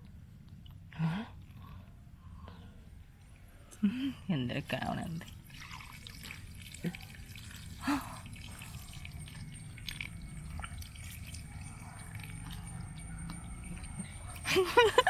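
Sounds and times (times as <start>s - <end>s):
water dripping and splashing: 4.8s - 14.9s.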